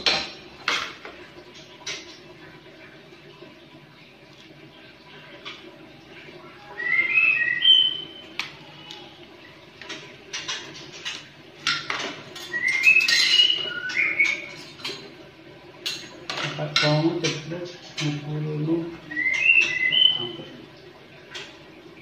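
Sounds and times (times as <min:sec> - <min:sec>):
bird singing whistled notes: 0:06.8 - 0:08.2, 0:12.5 - 0:14.5, 0:19.1 - 0:20.4.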